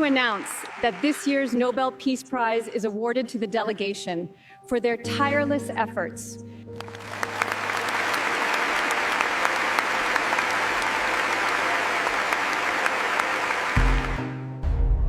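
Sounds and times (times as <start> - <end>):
crowd applauding: 0.0 - 1.7, 6.8 - 14.4
deep low music: 13.8 - 15.0.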